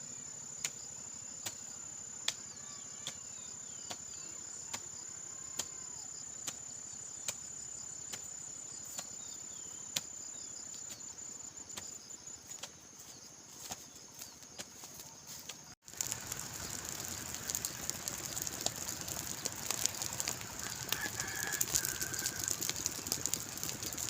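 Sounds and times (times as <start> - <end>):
insects chirring trill: 0.0 - 24.0.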